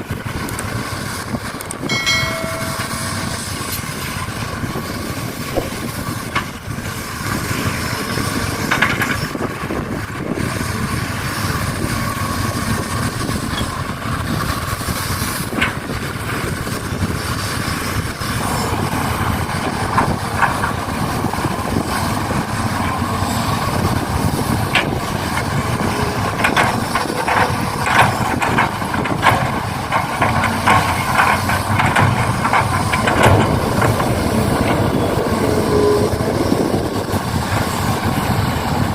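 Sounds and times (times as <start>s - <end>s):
clicks and knocks: 26.4s - 35.0s.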